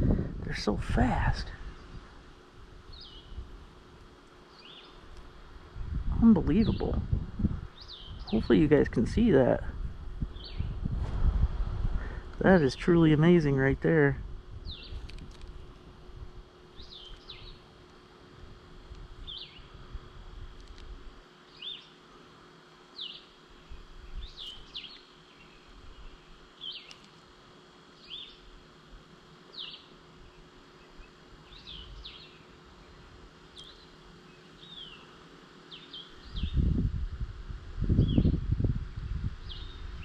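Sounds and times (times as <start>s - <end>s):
faint steady hum: 0.0s - 40.0s
bird calling with high chirps: 2.9s - 3.4s, 4.5s - 5.0s, 7.7s - 8.4s, 10.3s - 10.8s, 16.7s - 17.7s, 19.2s - 19.7s, 21.5s - 22.0s, 22.9s - 27.1s, 27.9s - 28.5s, 29.5s - 32.6s, 33.6s - 36.6s, 39.4s - 40.0s.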